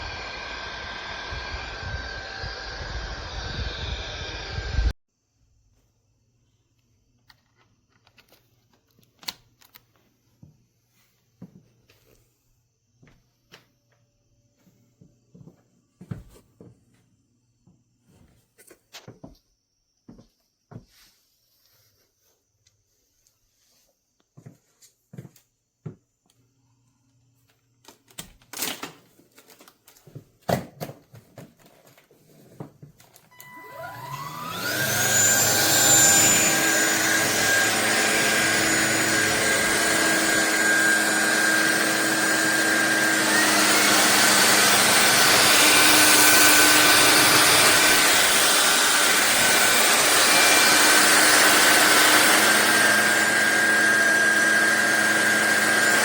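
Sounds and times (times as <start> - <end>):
stick vacuum motor whine: 0.0 - 5.0, 33.0 - 56.0.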